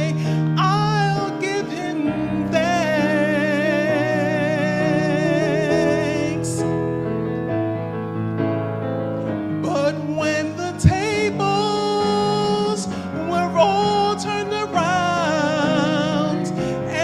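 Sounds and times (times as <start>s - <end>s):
person singing gospel with vibrato: 0.0s - 6.8s, 9.6s - 17.0s
instrumental accompaniment: 0.0s - 17.0s.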